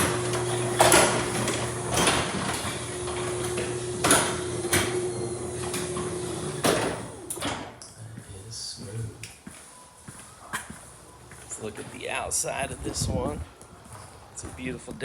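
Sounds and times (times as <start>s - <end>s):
garage door clunks: 0.0s - 7.8s
garage door opener humming: 0.0s - 7.8s.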